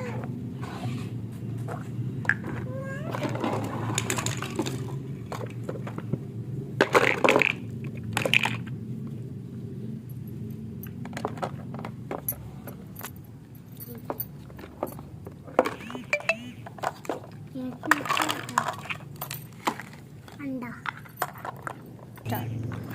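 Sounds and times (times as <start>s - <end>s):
small hard objects clattering: 2.3s - 6.2s, 6.8s - 8.7s, 15.5s - 22.0s.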